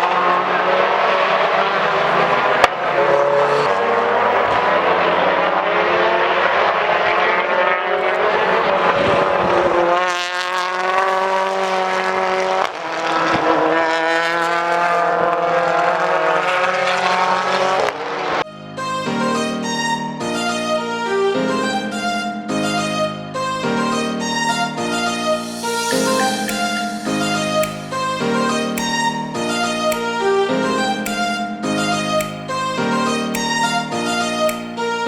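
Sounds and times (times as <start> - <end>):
race car engines: 0.0 - 18.4.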